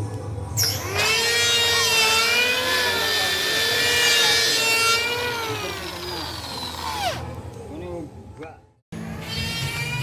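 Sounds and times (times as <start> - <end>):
power tool grinding metal: 0.8 - 7.4.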